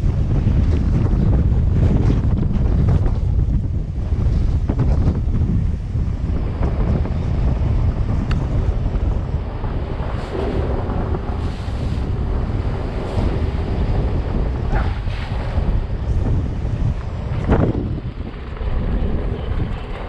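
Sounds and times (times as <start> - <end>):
wind buffeting microphone: 0.0 - 20.0
surf breaking: 4.1 - 20.0.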